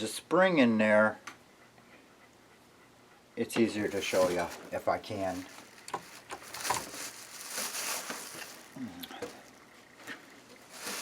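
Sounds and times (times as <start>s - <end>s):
rustling: 3.7s - 11.0s.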